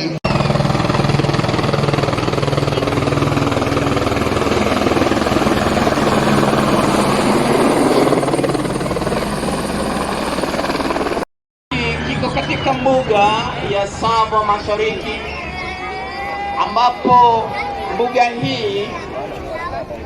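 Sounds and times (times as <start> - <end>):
helicopter rotor beat: 0.0 - 16.5
turbine engine running: 0.3 - 11.2.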